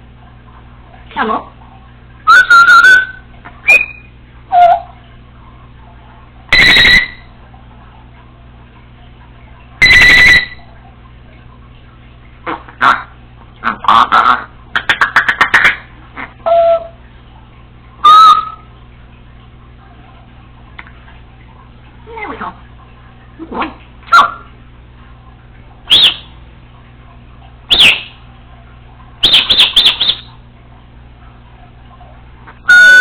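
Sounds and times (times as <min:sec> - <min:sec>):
parrot buzzy beep-like notes: 0:02.2 - 0:04.9, 0:06.5 - 0:07.3, 0:09.8 - 0:10.7, 0:16.4 - 0:17.0, 0:18.0 - 0:18.7, 0:29.2 - 0:30.3, 0:32.6 - 0:33.0
parrot whistled chirps: 0:02.2 - 0:04.9, 0:06.5 - 0:07.3, 0:09.8 - 0:10.6, 0:16.4 - 0:17.0, 0:18.0 - 0:18.7, 0:25.9 - 0:26.3, 0:27.7 - 0:28.2, 0:29.2 - 0:30.3, 0:32.6 - 0:33.0.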